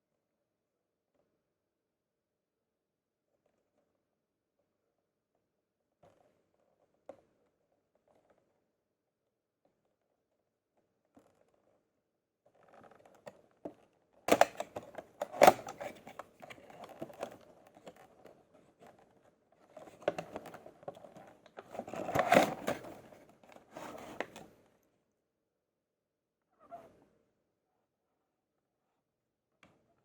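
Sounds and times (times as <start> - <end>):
toy truck handling clicks and scraping: 14.3 - 18.1, 19.8 - 24.6.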